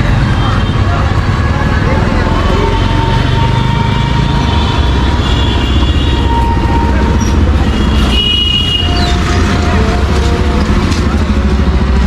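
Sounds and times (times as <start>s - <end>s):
heavy street traffic rumble: 0.0s - 12.0s.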